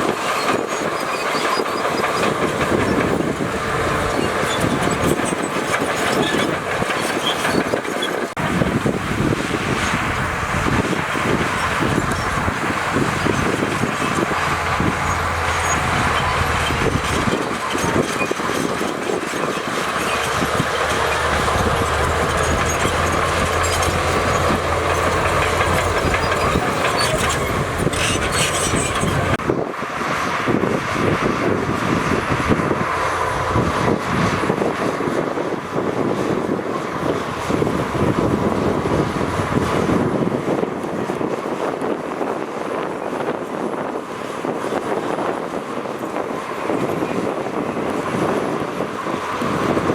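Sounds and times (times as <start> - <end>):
metal tracks clattering: 0.0 - 29.4
bulldozer diesel engine: 0.0 - 49.9.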